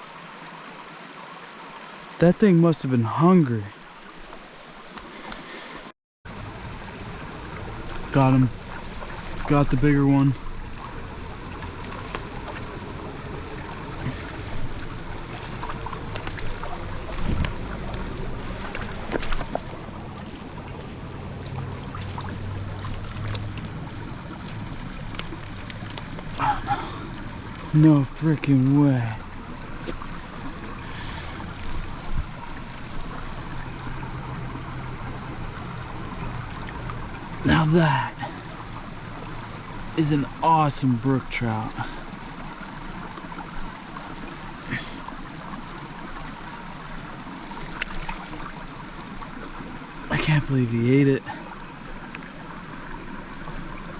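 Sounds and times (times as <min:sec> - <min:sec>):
mountain stream running: 0:00.0 - 0:53.9.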